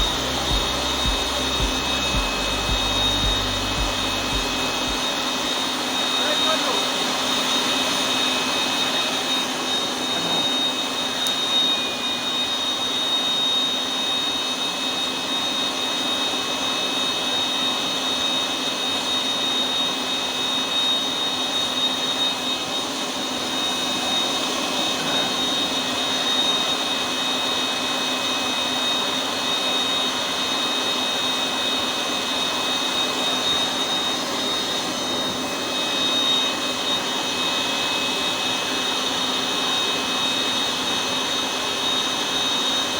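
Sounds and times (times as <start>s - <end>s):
forge burner roaring: 0.0s - 11.6s, 24.0s - 26.6s
high whine: 0.0s - 12.8s.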